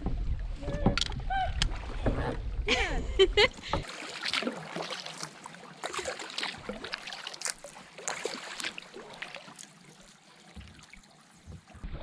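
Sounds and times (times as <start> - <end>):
paddle dipping and dripping: 0.0 - 12.0
trickling water: 0.0 - 12.0
small water splashes: 3.6 - 12.0.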